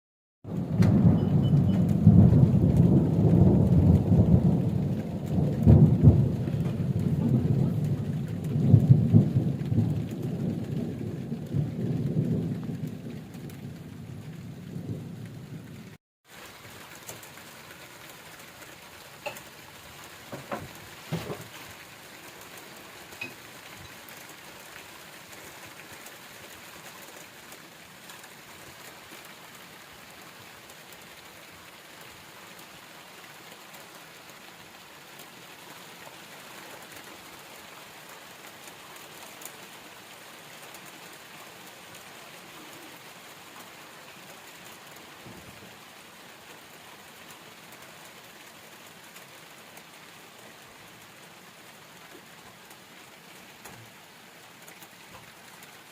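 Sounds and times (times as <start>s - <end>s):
heavy rain falling: 0.4s - 55.9s
drops knocking on something: 20.3s - 21.5s.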